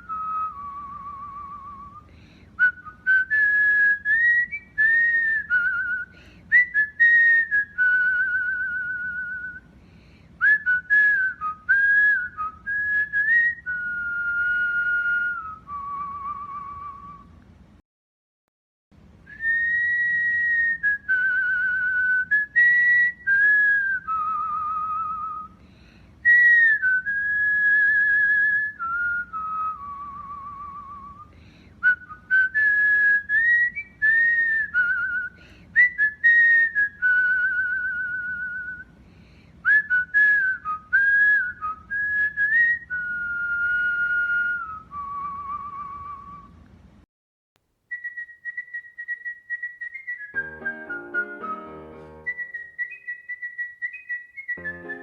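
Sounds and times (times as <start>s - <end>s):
cockatiel whistling: 47.9s - 55.0s.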